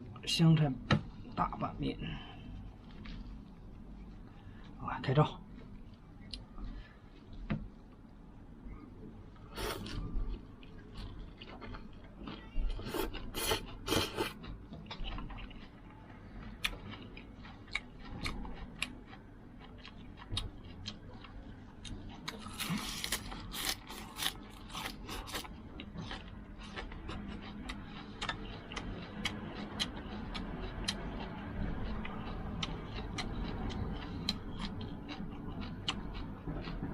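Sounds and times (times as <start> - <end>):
chewing: 9.5 - 36.9.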